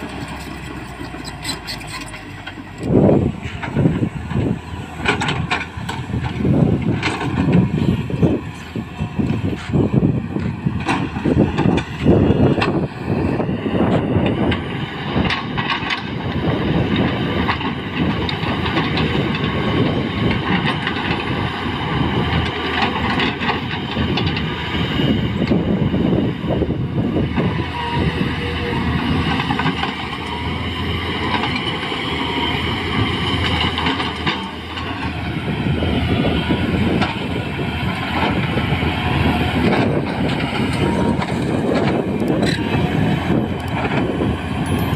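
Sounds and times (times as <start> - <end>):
excavator diesel engine: 0.0 - 44.9
hydraulic whine: 23.1 - 44.9.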